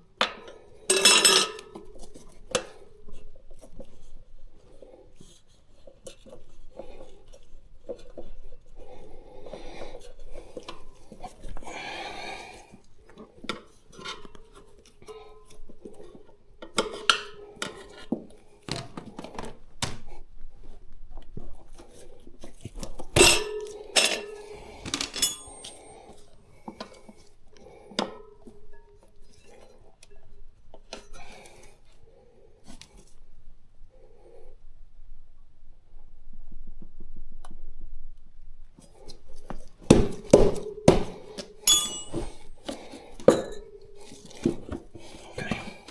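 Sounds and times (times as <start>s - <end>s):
tyre levers clinking on wheel rim: 23.2s - 25.8s, 41.6s - 42.4s.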